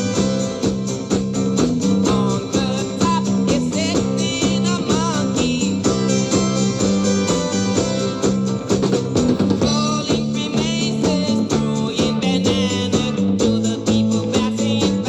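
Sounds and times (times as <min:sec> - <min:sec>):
electric guitar: 0:00.0 - 0:15.0
drum kit beat: 0:07.9 - 0:12.0.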